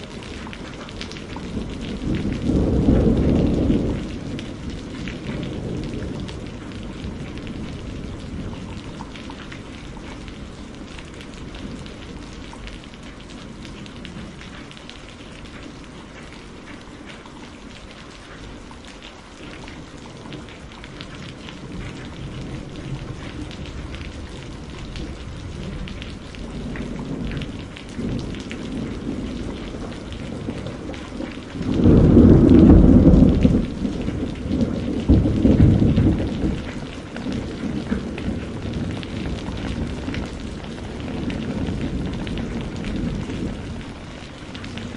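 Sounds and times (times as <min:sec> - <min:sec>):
thunder rumbling: 0:00.0 - 0:14.7, 0:20.3 - 0:44.9
steady rain: 0:00.0 - 0:44.9
loud thunderclap: 0:01.5 - 0:08.8, 0:21.7 - 0:44.0.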